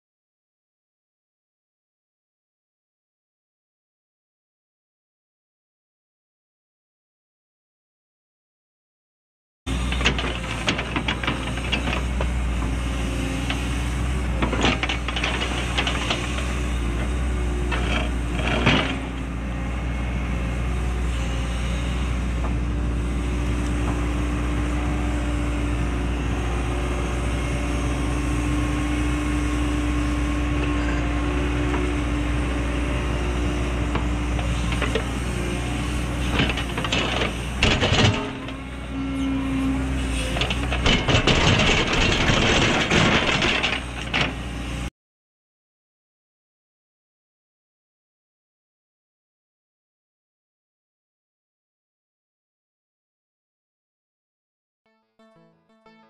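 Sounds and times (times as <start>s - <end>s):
excavator diesel engine whining: 9.7s - 44.9s
knocks and scrapes on ground: 17.6s - 19.2s, 35.9s - 38.6s, 40.0s - 44.5s.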